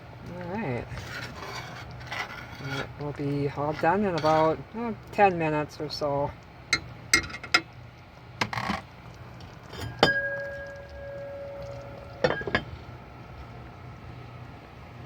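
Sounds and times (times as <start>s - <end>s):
metal cookware clinking: 3.6s - 4.6s, 6.7s - 7.6s, 9.6s - 12.8s
sharp ringing clang: 9.8s - 12.7s.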